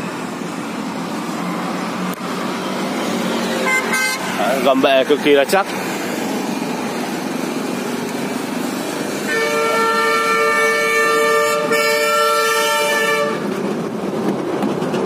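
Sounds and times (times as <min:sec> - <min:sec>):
street traffic noise: 0:00.0 - 0:15.0
long horn blast: 0:03.6 - 0:04.6, 0:09.2 - 0:13.6.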